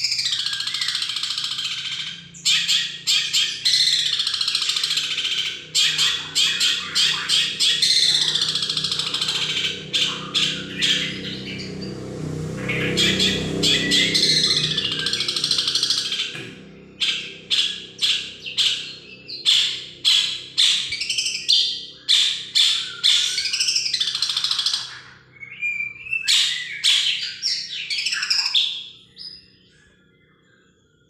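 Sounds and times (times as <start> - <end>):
shrike singing harsh notes: 5.5 - 20.5.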